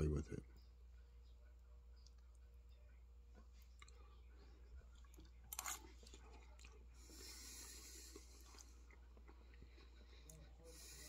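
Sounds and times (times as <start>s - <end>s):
person chewing food: 3.3s - 11.0s.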